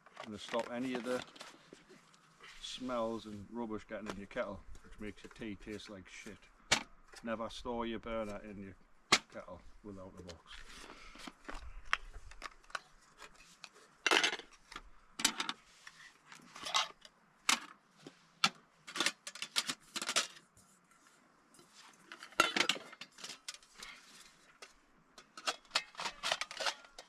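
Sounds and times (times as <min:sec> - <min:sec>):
metal pans clinking and scraping: 0:14.0 - 0:14.5, 0:15.2 - 0:15.6, 0:16.5 - 0:17.6, 0:18.9 - 0:20.4, 0:22.1 - 0:27.0.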